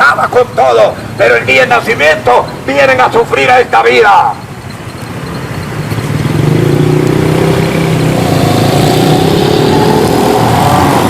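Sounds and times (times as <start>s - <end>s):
vehicle engine accelerating: 4.7s - 11.0s.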